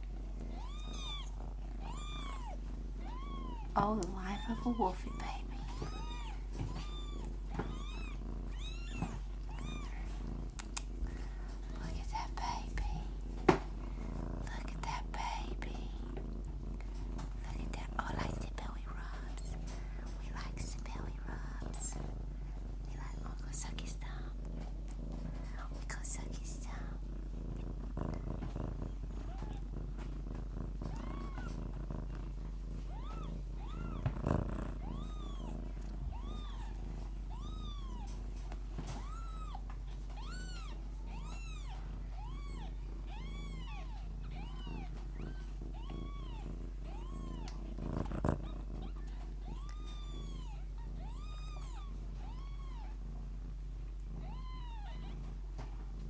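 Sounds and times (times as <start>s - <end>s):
kittens mewing: 0.0s - 13.4s, 29.2s - 29.8s, 30.8s - 31.6s, 32.7s - 53.1s, 54.1s - 55.4s
cat purring: 0.0s - 56.0s.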